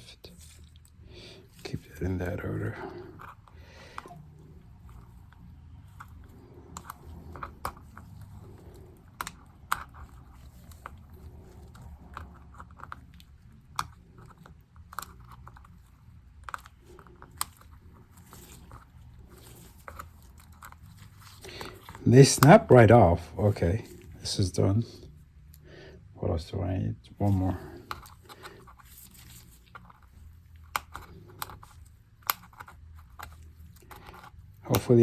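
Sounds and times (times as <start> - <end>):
plastic keycaps clicking and snapping: 4.8 - 22.8, 29.7 - 34.9.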